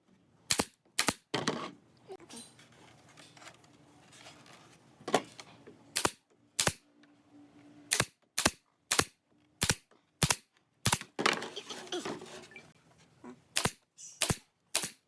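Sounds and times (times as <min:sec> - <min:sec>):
nails hammered into wood: 0:00.5 - 0:01.3, 0:06.0 - 0:06.8, 0:07.9 - 0:11.2, 0:13.6 - 0:15.0.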